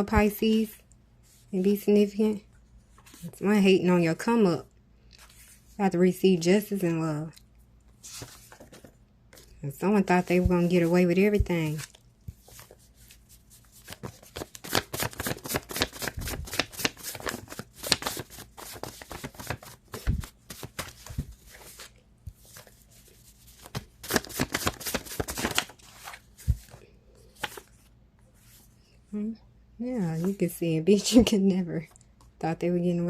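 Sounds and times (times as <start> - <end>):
cards shuffled by hand: 10.2 - 27.8.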